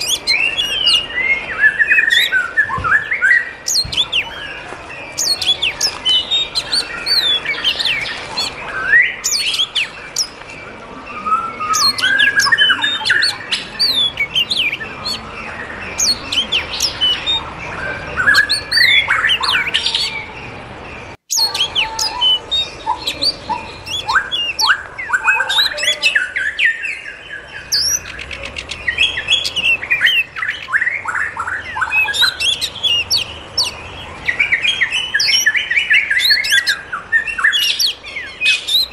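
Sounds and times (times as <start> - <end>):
flock of birds chirping: 0.0 - 38.9.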